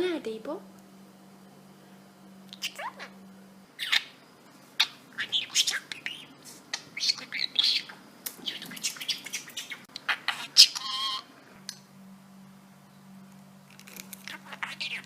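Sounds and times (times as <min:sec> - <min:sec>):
budgerigar chirping and squawking: 0:03.8 - 0:04.2, 0:04.8 - 0:11.3.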